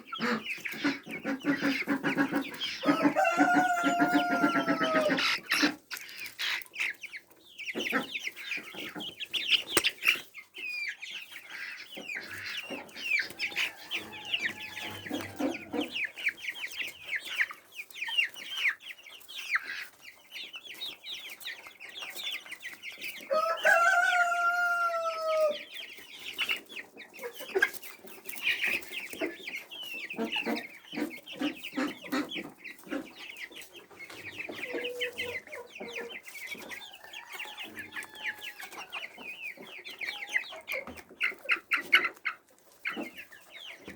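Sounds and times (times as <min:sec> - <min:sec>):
chickens clucking: 0:00.0 - 0:43.9
rooster crowing: 0:02.8 - 0:05.2, 0:13.5 - 0:15.4, 0:23.3 - 0:25.6.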